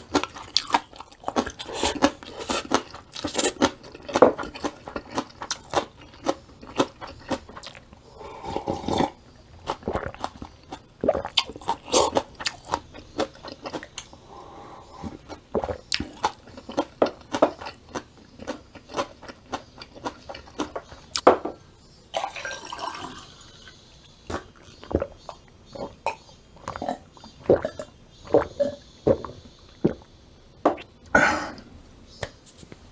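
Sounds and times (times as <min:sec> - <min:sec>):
person chewing: 0:00.0 - 0:21.3, 0:22.6 - 0:30.2
wet slurps: 0:00.0 - 0:21.3.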